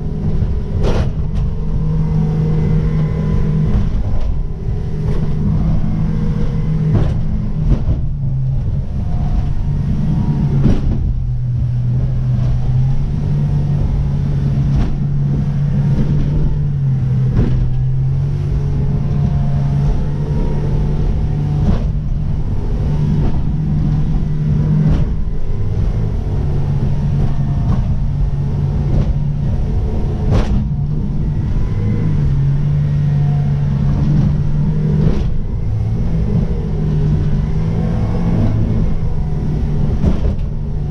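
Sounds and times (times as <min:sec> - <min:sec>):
motorboat engine running: 0:00.0 - 0:40.9
sharp irregular thumps: 0:00.2 - 0:40.9.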